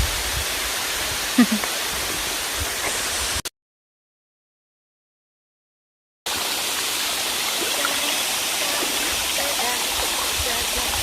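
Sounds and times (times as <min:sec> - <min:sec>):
waterfall and stream rushing: 0:00.0 - 0:03.4, 0:06.3 - 0:11.0.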